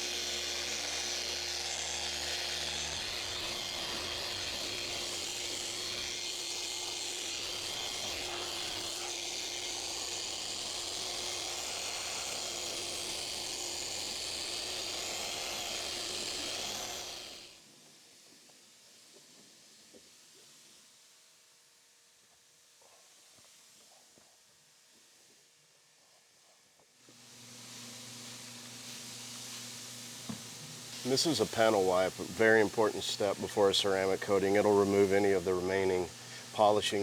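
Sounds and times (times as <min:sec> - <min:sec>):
orbital polisher whirring: 0:00.0 - 0:17.6, 0:27.2 - 0:37.0.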